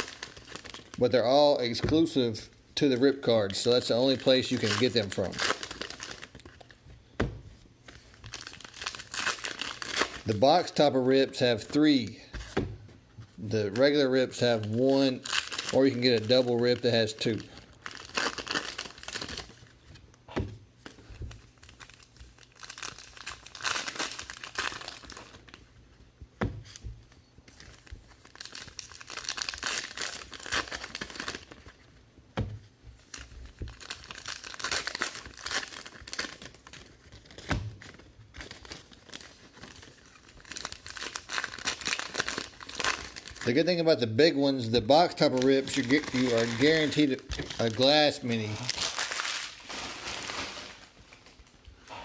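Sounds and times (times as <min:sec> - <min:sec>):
plastic wrappers crinkling: 0:00.0 - 0:06.8, 0:07.8 - 0:12.6, 0:13.3 - 0:19.8, 0:20.8 - 0:25.7, 0:27.4 - 0:32.0, 0:32.9 - 0:51.8.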